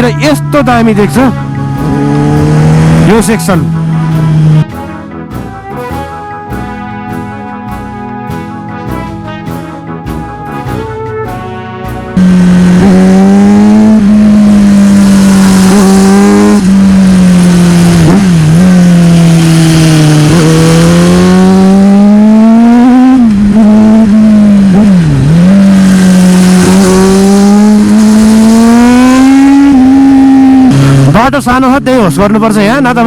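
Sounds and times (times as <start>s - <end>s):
motorcycle engine revving: 0.0s - 33.0s
wind rushing: 12.2s - 31.2s.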